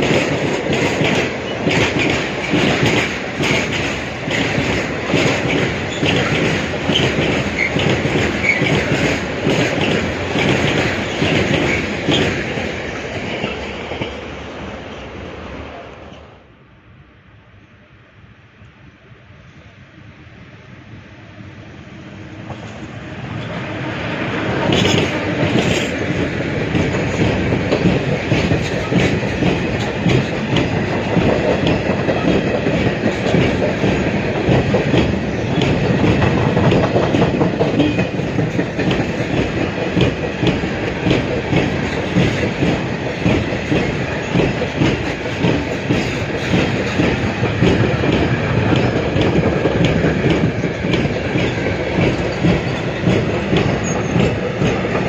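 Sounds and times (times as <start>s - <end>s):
freight train rumbling past: 0.0s - 55.0s
wheels clicking over rail joints: 24.6s - 55.0s.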